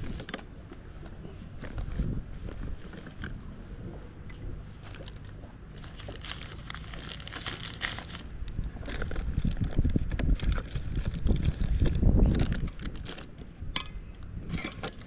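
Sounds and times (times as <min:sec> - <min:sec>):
wind rumbling on microphone: 0:00.0 - 0:15.0
packaging crinkling: 0:05.8 - 0:13.3.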